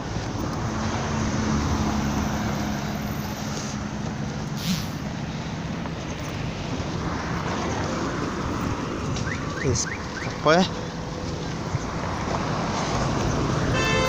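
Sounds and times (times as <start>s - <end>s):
traffic engine hum: 0.0s - 14.0s
short hiss: 4.6s - 5.0s.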